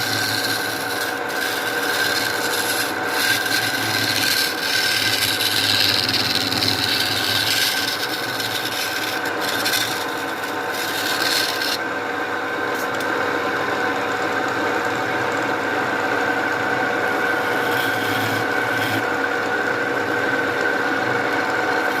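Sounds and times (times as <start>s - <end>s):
tool scraping on wood: 0.0s - 11.8s, 12.7s - 13.1s, 17.0s - 19.1s
steady hum: 0.0s - 22.0s.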